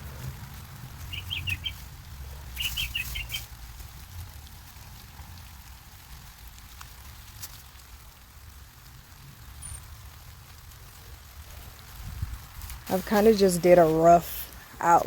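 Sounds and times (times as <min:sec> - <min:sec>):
low steady rumble: 0:00.0 - 0:15.0
songbird chirping: 0:00.9 - 0:03.6.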